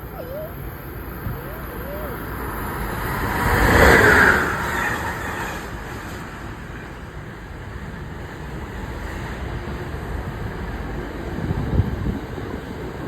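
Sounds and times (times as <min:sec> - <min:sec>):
electric train passing: 0:00.0 - 0:13.0.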